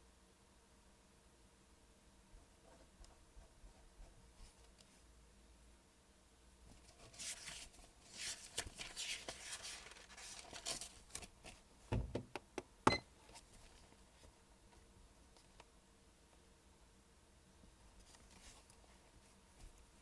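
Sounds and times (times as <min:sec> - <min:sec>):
paper rustling: 0:06.7 - 0:11.6
knocks on a desk: 0:11.9 - 0:13.0.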